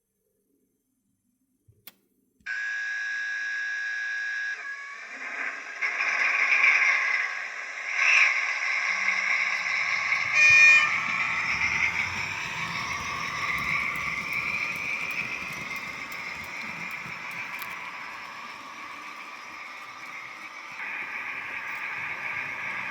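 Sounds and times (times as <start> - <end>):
diesel engine sound running: 5.0 - 22.9.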